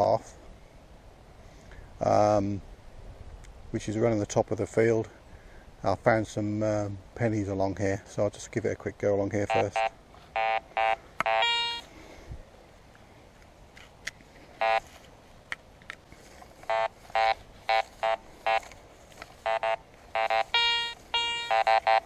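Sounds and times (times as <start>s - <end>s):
metal detector buzzy beeps: 9.5s - 11.9s, 14.6s - 14.9s, 16.6s - 18.8s, 19.4s - 22.0s
metal detector long tone: 9.5s - 11.9s, 14.6s - 14.9s, 16.6s - 22.0s.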